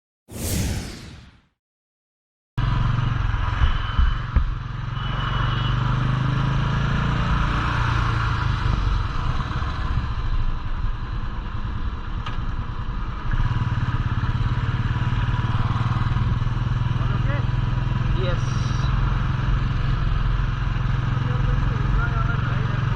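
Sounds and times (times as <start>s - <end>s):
motorcycle engine running: 2.6s - 5.4s, 8.2s - 22.9s.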